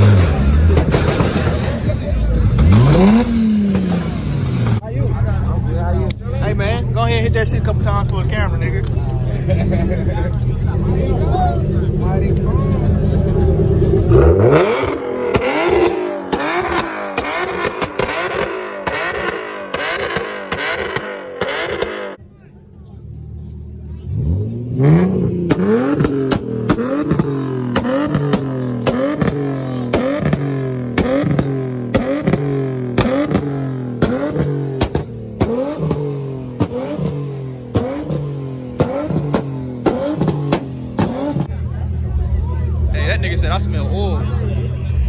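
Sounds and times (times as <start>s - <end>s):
exhaust pops and cracks: 0.0s - 4.8s, 12.1s - 22.2s, 24.9s - 41.5s
car engine revving: 0.0s - 45.0s.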